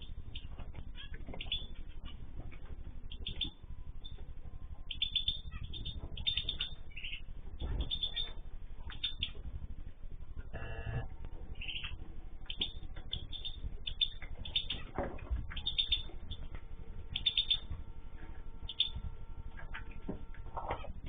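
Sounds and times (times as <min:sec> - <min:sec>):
small birds chirping: 0:00.0 - 0:21.0
lower bird call: 0:10.4 - 0:21.0.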